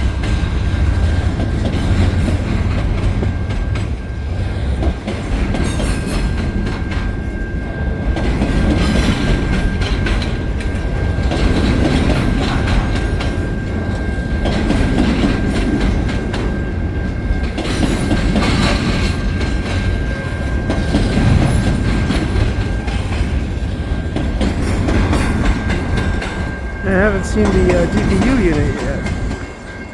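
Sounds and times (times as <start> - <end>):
freight cars rumbling: 19.8 - 29.7.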